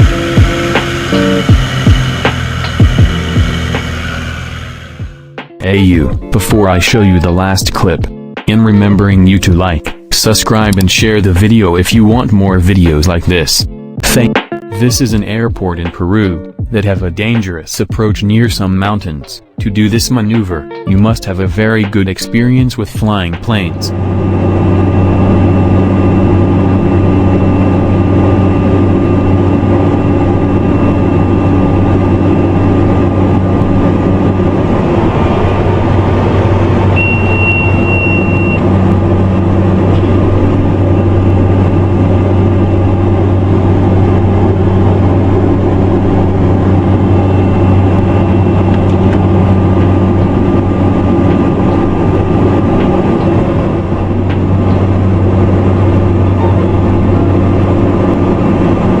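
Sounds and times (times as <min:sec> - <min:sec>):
airplane engine drone: 0:00.0 - 0:59.0
brief high tone: 0:36.9 - 0:38.6.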